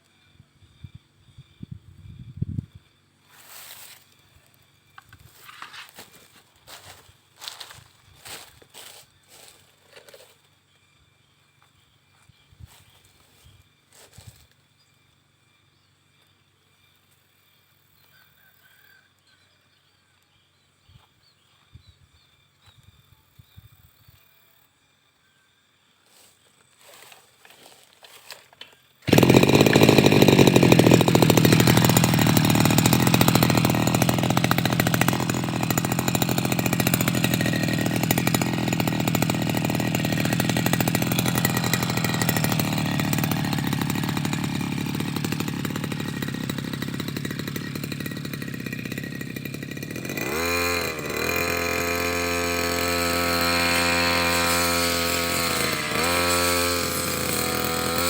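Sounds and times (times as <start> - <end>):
brush cutter engine running: 3.3 - 10.5, 11.6 - 14.6, 26.1 - 58.0.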